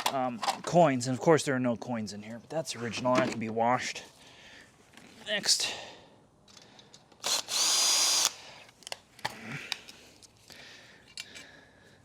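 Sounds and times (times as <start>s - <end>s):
power drill whining: 7.2s - 8.4s
light clicks of parts handled: 8.6s - 11.6s.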